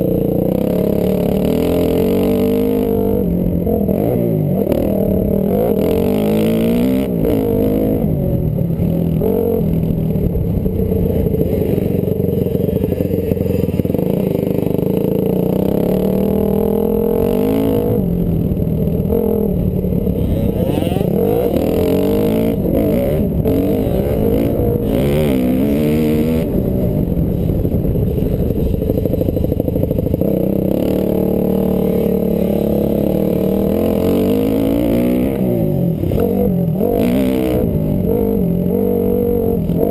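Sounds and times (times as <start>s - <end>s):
dirt bike engine revving hard: 19.1s - 39.9s.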